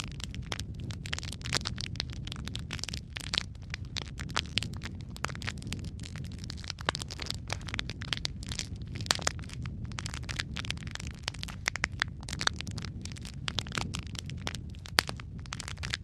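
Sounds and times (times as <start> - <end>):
low rumble of flames: 0.0 - 16.0
wood fire crackling: 0.0 - 16.0.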